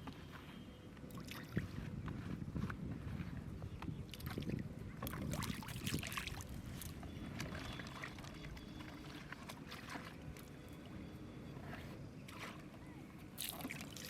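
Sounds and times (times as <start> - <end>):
river water splashing: 5.0 - 11.0, 13.4 - 14.0.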